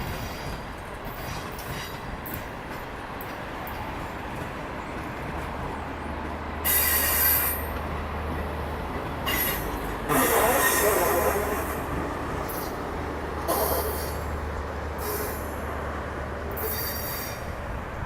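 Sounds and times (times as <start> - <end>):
train wheels squealing on rails: 0.0 - 3.8, 6.6 - 7.8, 9.2 - 14.4, 15.0 - 15.7, 16.5 - 17.7
train rumbling past: 0.0 - 18.0.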